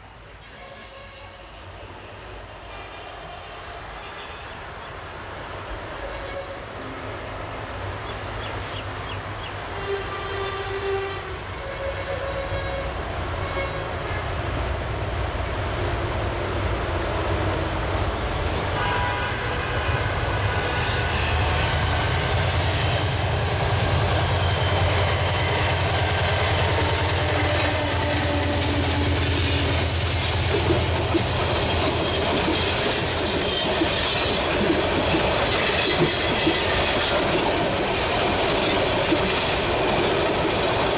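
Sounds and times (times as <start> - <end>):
diesel locomotive engine drone: 0.0 - 40.9
train horn: 0.4 - 1.7, 6.0 - 7.1, 9.7 - 14.4, 18.7 - 21.8, 24.7 - 29.8
wheels clattering over rail joints: 29.8 - 40.9.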